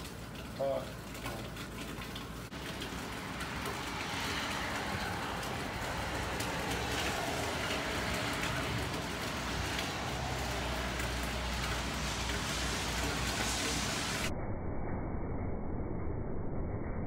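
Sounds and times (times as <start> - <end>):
steady rain falling: 2.2 - 14.3.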